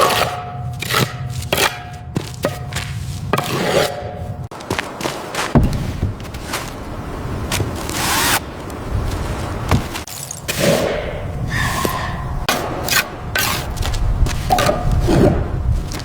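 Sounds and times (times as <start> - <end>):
knocks and thuds on wood: 4.6 - 6.7, 9.7 - 10.0.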